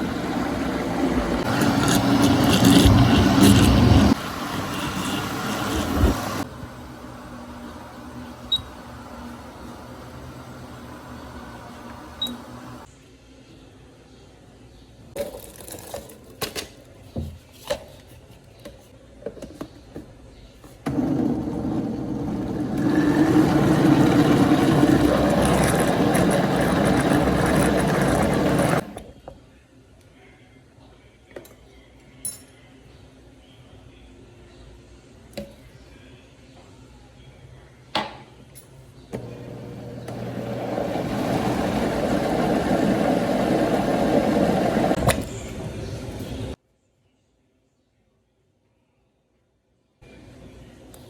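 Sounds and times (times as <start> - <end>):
kitchen blender running: 0.0 - 12.9, 20.9 - 29.0, 39.2 - 46.6.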